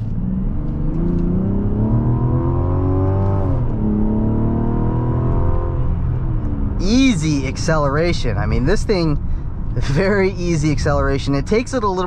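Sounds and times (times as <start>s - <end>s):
car engine accelerating: 0.0s - 11.7s.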